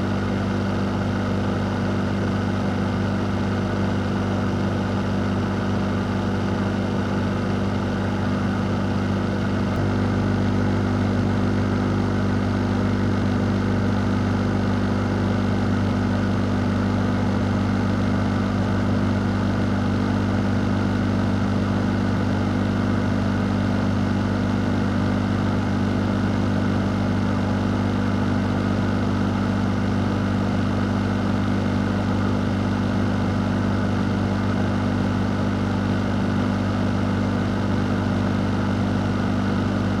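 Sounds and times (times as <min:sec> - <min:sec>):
fan running: 0:00.0 - 0:40.0.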